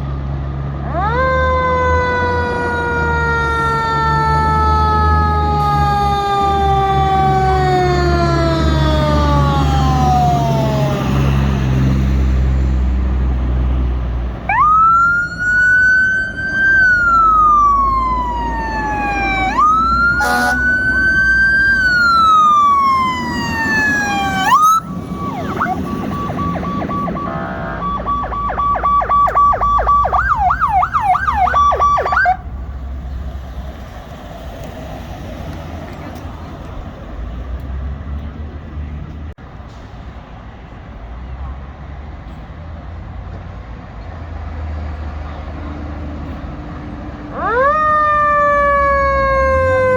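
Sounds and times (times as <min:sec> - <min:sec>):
fire truck siren wailing: 0:00.0 - 0:32.9, 0:45.7 - 0:49.9
truck engine rumbling: 0:00.0 - 0:49.9
fast warbling siren yelp: 0:00.9 - 0:11.1, 0:14.5 - 0:32.5, 0:47.3 - 0:49.9.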